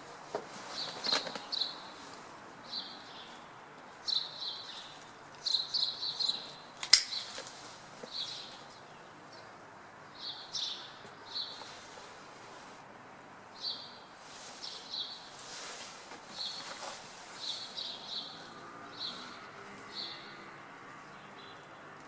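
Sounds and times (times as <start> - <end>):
small birds chirping: 0.6 - 12.7, 13.6 - 22.0
sharp click: 6.8 - 7.2.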